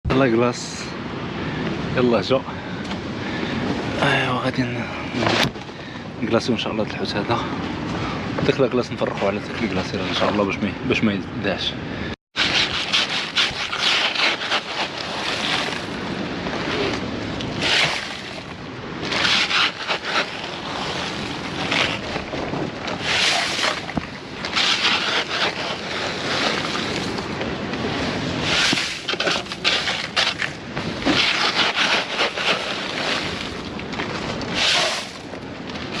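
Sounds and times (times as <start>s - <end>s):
ice spread over fish: 12.4s - 27.3s, 28.4s - 36.0s.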